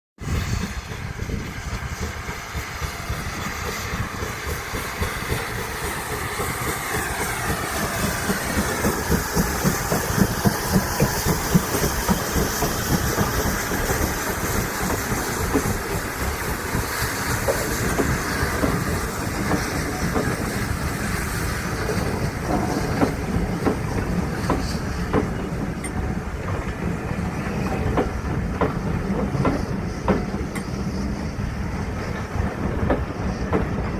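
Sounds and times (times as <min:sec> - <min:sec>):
train rumble: 0:00.2 - 0:33.9
train wheels clattering: 0:00.3 - 0:33.9.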